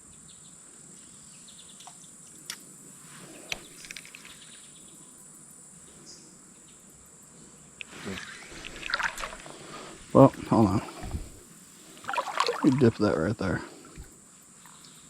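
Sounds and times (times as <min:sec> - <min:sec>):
insects droning: 0:00.0 - 0:15.0
faint ticks: 0:01.0 - 0:02.7, 0:03.4 - 0:04.6.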